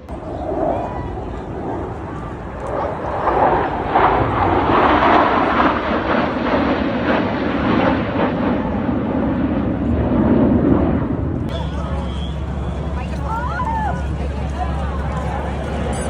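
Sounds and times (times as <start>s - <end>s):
aircraft passing overhead: 0.0s - 16.0s.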